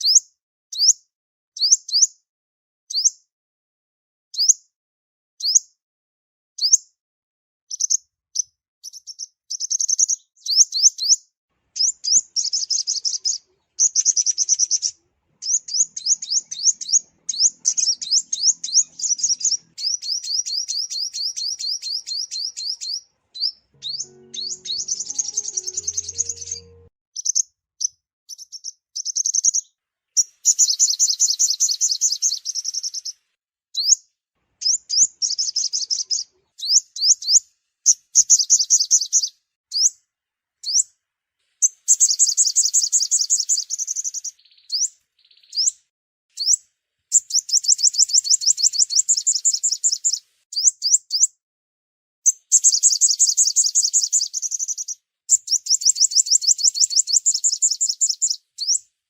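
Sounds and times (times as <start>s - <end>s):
bird song high trills: 11.7s - 26.9s.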